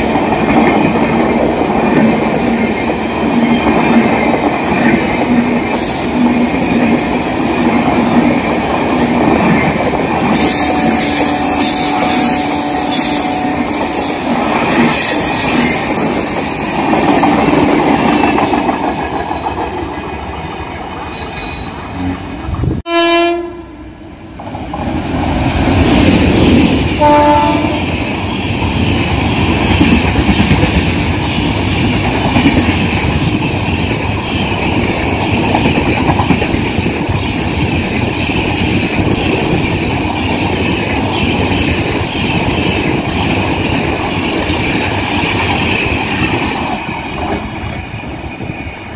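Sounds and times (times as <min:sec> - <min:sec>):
train passing at speed: 0:00.0 - 0:48.9
train horn blast: 0:10.4 - 0:14.3, 0:22.9 - 0:24.0, 0:27.0 - 0:28.0.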